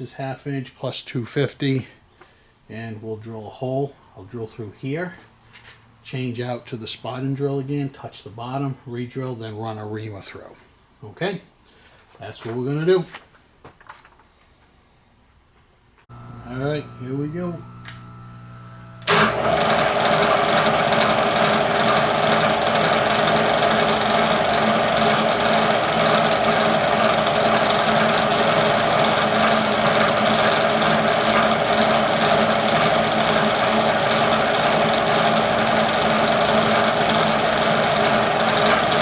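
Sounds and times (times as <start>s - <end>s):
milling machine motor humming: 16.1s - 39.0s.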